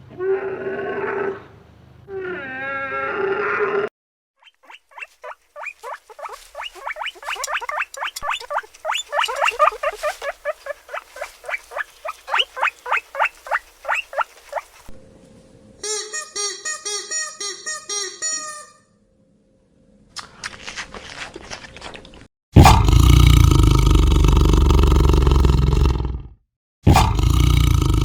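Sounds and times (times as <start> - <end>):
animal calling: 4.4 - 14.9
animal squealing: 4.4 - 14.9.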